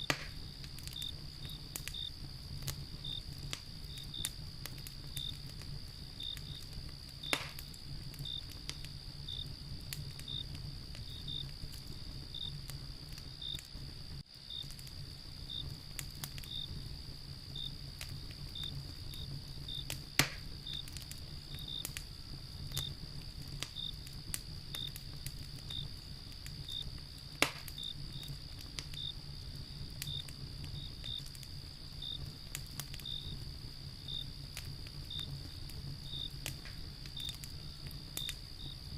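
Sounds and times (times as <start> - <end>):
cricket chirping: 0.0 - 38.9
sharp fire cracks: 0.0 - 38.9
wood fire crackling: 0.0 - 38.9.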